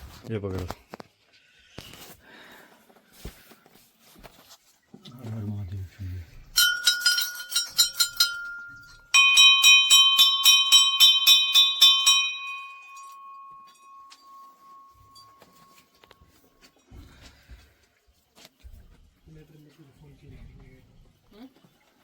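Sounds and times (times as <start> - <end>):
temple bells rung rapidly: 6.6 - 15.6
lower-pitched bell ringing: 6.6 - 16.4.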